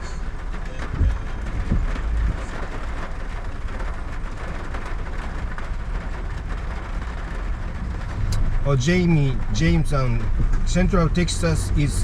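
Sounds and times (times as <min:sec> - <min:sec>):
car engine and tyre rumble: 0:00.0 - 0:12.0
low thumps: 0:00.8 - 0:02.4, 0:07.6 - 0:10.8.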